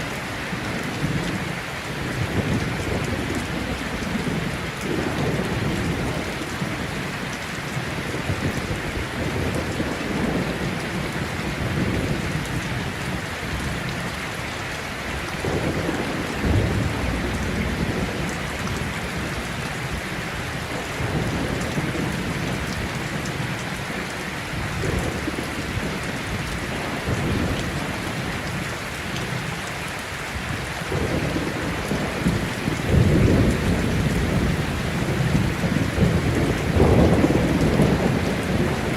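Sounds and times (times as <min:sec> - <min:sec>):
heavy rain falling: 0:00.0 - 0:38.9
thunder rumbling: 0:15.4 - 0:23.6, 0:30.8 - 0:38.9.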